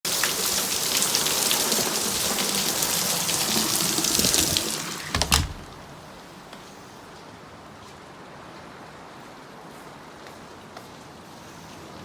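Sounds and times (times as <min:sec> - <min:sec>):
heavy rain hissing: 0:00.1 - 0:06.5.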